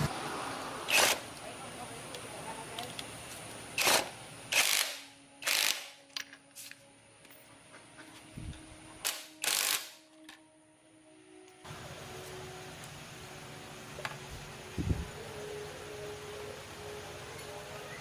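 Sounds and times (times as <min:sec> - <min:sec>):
hand tool ratcheting: 0:03.8 - 0:06.8, 0:09.0 - 0:10.0.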